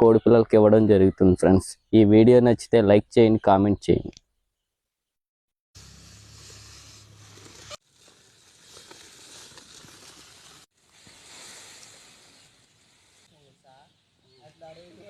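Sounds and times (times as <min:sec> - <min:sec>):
outdoor rustling: 0:05.8 - 0:15.0.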